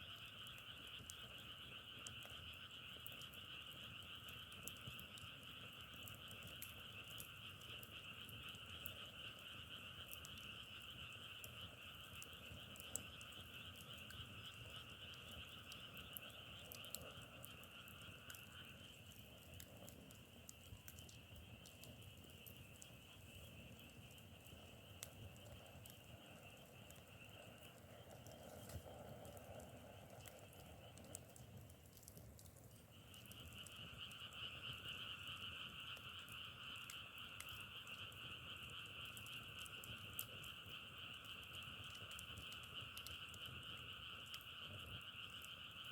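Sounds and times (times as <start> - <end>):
frogs calling: 0.0 - 45.9
faint sharp clicks: 12.2 - 45.8.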